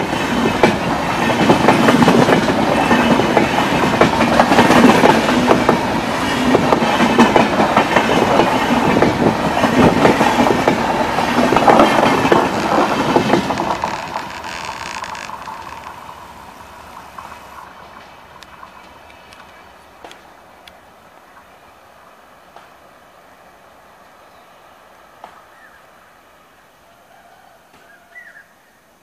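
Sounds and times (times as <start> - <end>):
train wheels clattering over rails: 0.0 - 20.4.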